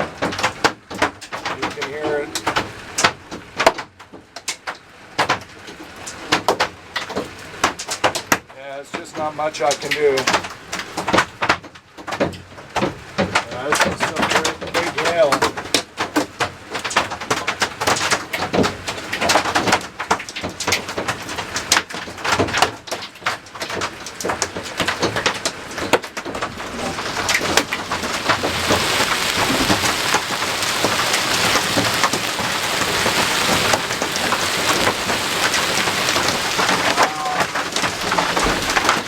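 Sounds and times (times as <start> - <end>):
hailstones pelting: 0.0 - 3.9, 12.8 - 39.0.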